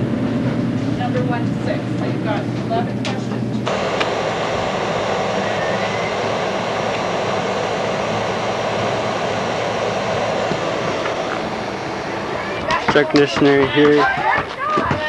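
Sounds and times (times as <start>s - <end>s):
air conditioner running: 0.0s - 15.0s
low hum: 3.6s - 13.6s.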